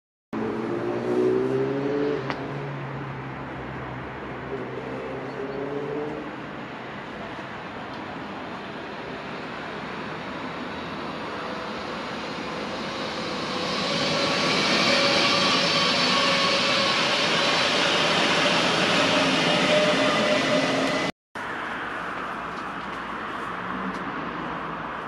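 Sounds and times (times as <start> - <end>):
train whine: 7.1 - 21.1
train wheels rumbling on rails: 9.9 - 21.1.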